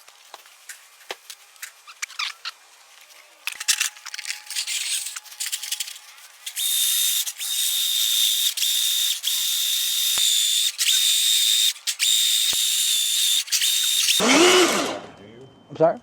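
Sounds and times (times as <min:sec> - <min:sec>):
power tool motor whine: 0:04.4 - 0:15.2.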